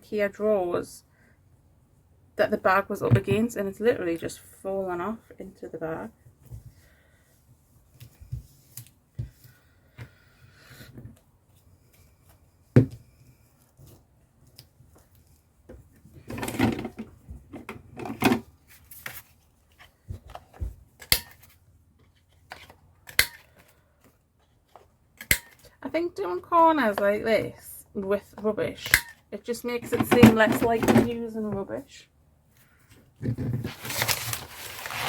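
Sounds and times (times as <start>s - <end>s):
paper rustling and crinkling: 33.6s - 35.0s.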